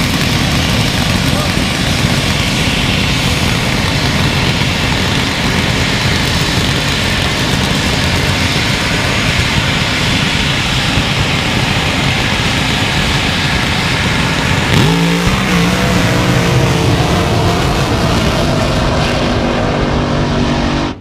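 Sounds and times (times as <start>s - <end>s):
drag racing engines roaring: 0.0s - 21.0s.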